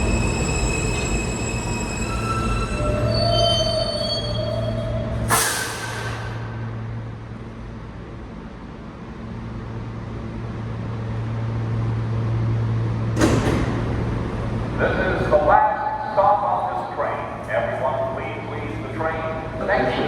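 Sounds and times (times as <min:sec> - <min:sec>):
train brake squeal: 0:00.0 - 0:06.4
train car low hum: 0:00.0 - 0:20.0
air brake hiss: 0:05.2 - 0:06.6.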